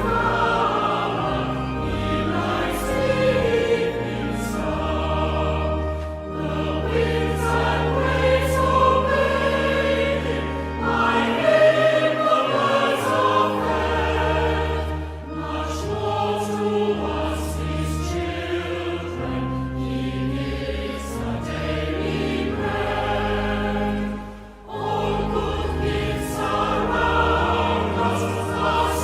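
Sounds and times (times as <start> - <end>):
church organ: 0.0 - 29.0
congregation singing a hymn: 0.0 - 29.0.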